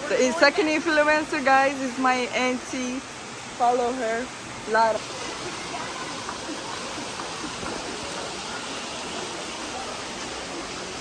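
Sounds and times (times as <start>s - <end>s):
steady rushing hiss: 0.0s - 11.0s
faint voices murmuring: 4.8s - 11.0s.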